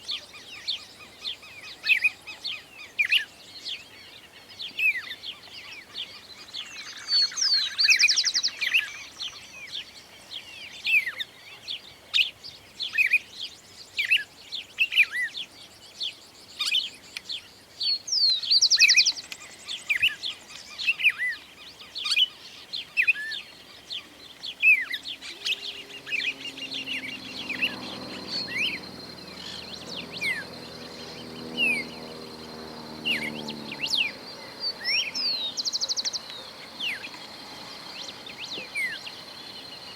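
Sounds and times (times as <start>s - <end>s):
birds chirping and whistling: 17.8s - 39.9s
buzzy bird trills: 23.0s - 39.9s.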